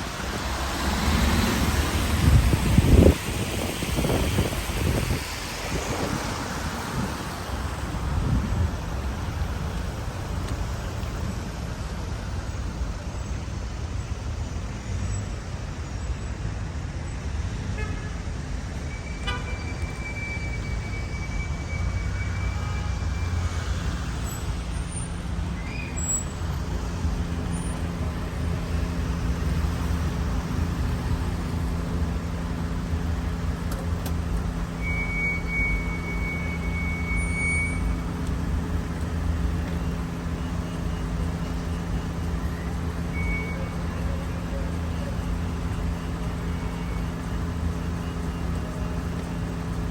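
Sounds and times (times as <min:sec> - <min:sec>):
car engine and road rumble: 0:00.0 - 0:49.9.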